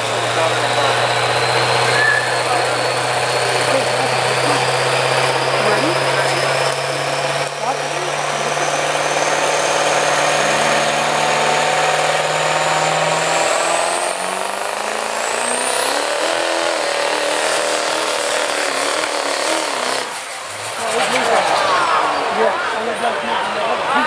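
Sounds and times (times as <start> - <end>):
truck engine running under load: 0.0 - 23.9
high whistle: 1.9 - 2.5.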